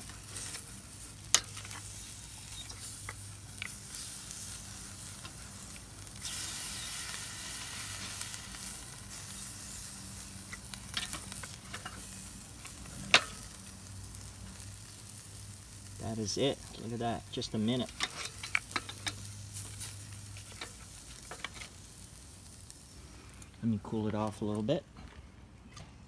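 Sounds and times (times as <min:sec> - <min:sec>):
meat sizzling over charcoal: 0:00.0 - 0:24.8
metal tongs clicking on grate: 0:01.3 - 0:01.9, 0:10.5 - 0:12.1, 0:13.1 - 0:13.5, 0:17.8 - 0:19.3.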